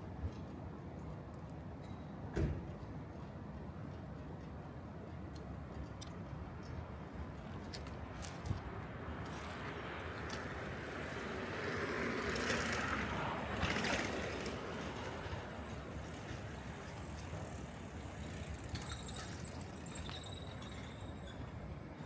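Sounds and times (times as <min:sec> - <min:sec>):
vehicle passing: 0:09.4 - 0:15.7.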